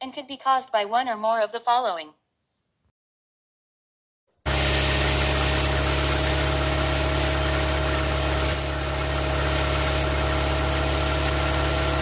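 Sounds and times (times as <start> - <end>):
car engine humming steadily: 4.5 - 12.0.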